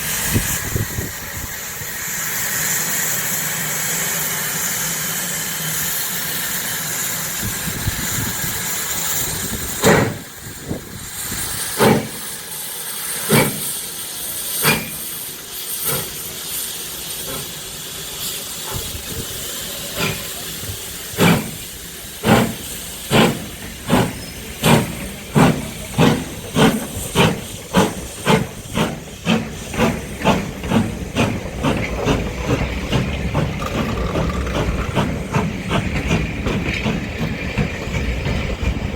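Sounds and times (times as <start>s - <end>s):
locomotive chuffing beats: 0.0s - 38.9s
locomotive steam hiss: 0.0s - 38.9s.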